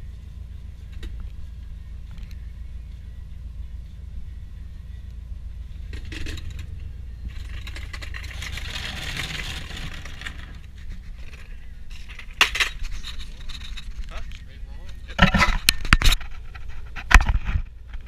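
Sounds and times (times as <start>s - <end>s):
steady low rumble: 0.0s - 18.0s
metallic clinking and scraping: 5.7s - 18.0s.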